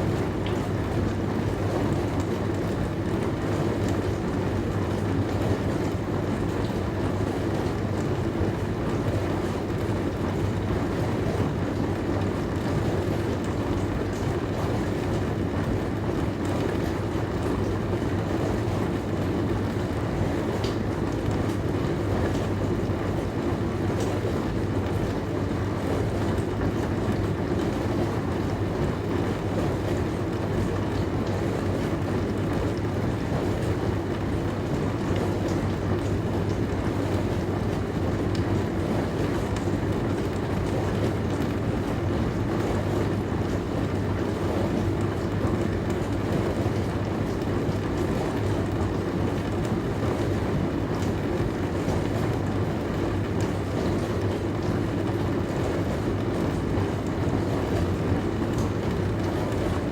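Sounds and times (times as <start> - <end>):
dishwasher motor hum: 0.0 - 59.9.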